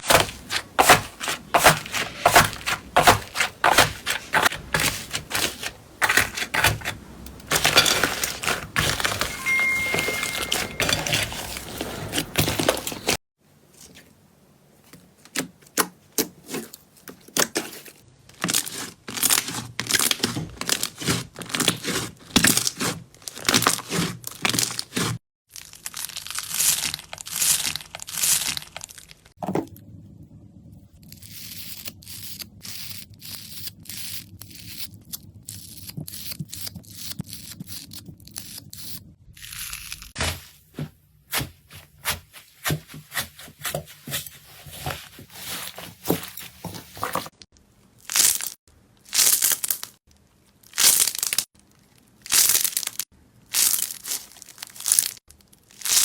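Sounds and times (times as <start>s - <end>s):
slime crackling and popping: 25.5s - 29.3s.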